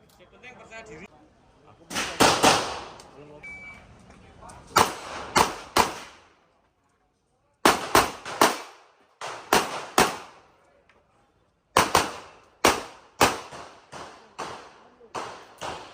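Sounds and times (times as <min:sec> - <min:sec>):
pistol shots echoing: 0:01.9 - 0:03.0, 0:04.8 - 0:06.2, 0:07.6 - 0:10.4, 0:11.8 - 0:15.9.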